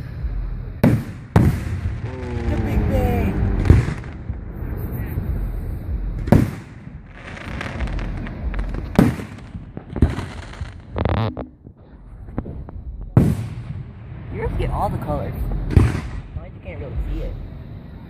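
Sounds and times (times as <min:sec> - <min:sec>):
fireworks booming: 0:00.0 - 0:17.6
rumbling and crackle: 0:00.0 - 0:18.0.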